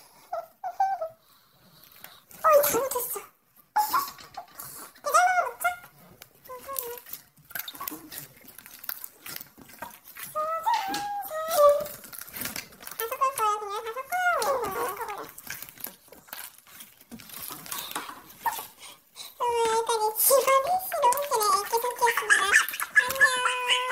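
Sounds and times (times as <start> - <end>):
slime squelching: 1.7 - 23.9
high-pitched squeaky voice: 2.4 - 8.0, 10.3 - 12.1, 12.9 - 15.4, 19.4 - 23.9.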